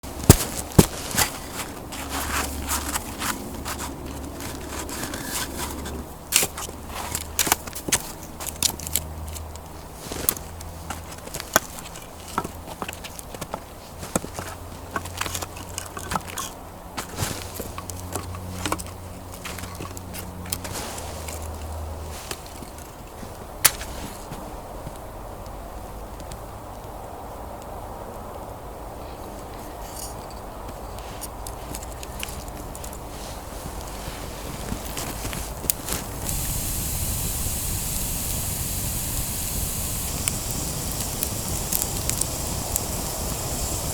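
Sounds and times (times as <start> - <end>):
campfire hissing and crackling: 0.0 - 13.2, 31.0 - 43.9
campfire sharp pops: 0.1 - 1.2, 23.6 - 23.9, 35.6 - 43.9.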